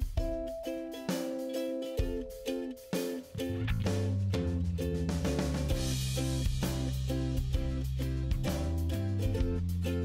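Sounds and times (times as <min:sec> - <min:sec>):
drums: 0:00.0 - 0:10.0
plucked guitar chords: 0:00.0 - 0:10.0
bass line: 0:03.3 - 0:10.0.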